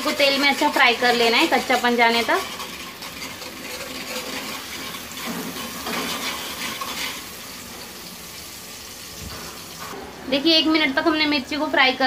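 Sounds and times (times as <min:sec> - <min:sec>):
steel spoon scraping a pot: 0:00.0 - 0:07.4
paste sizzling in hot oil: 0:00.0 - 0:10.0.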